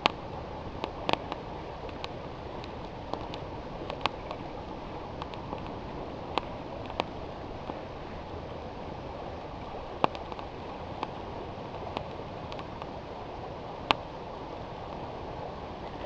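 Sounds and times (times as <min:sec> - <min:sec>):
campfire crackling and popping: 0:00.0 - 0:07.8, 0:09.9 - 0:12.9
river water flowing: 0:00.0 - 0:16.0.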